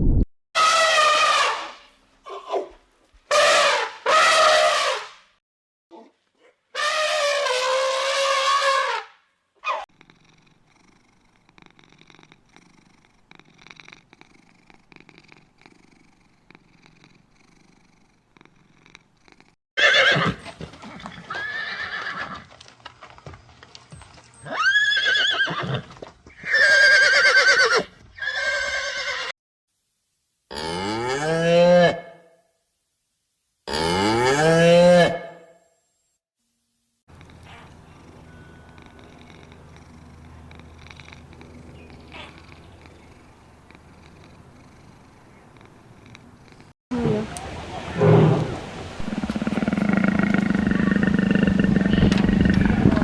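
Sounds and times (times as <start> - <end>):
animal calls with wavering pitch: 37.2 - 43.3.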